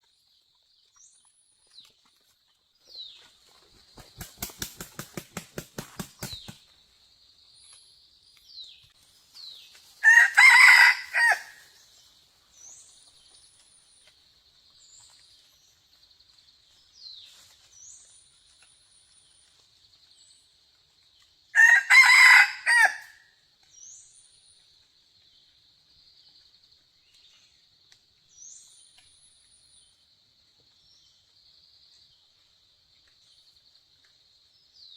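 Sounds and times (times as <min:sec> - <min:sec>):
wings flapping: 0:03.6 - 0:06.6
rooster crowing: 0:10.0 - 0:11.7, 0:21.6 - 0:23.2.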